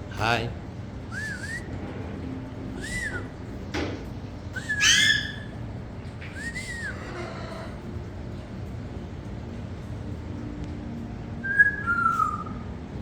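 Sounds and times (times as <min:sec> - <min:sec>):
steady low hum: 0:00.0 - 0:13.0
bird whistling arched notes: 0:01.1 - 0:01.8, 0:02.7 - 0:03.4, 0:04.6 - 0:05.6, 0:11.4 - 0:12.8.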